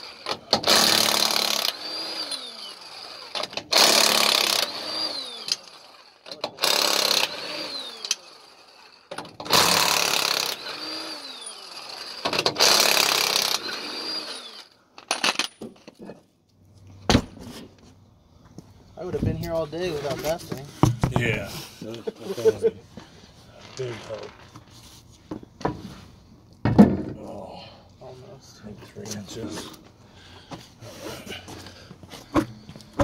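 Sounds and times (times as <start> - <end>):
power tool bursts: 0.0 - 15.5.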